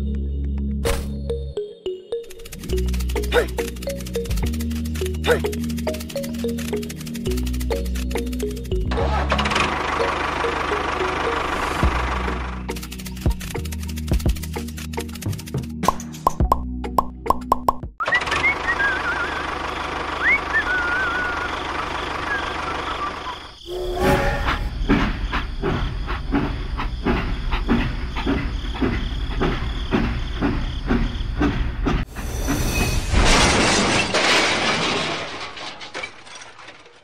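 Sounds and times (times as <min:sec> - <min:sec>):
wheels clickety-clack: 0:02.3 - 0:15.6, 0:24.7 - 0:32.1
train rumbling on track: 0:02.5 - 0:15.3, 0:18.4 - 0:33.4
whistling glides: 0:18.0 - 0:25.5.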